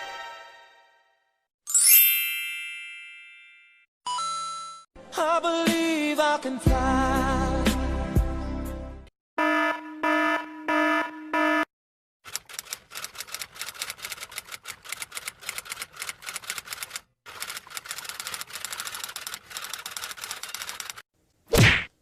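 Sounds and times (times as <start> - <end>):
rapid typing clicks: 12.3 - 21.0.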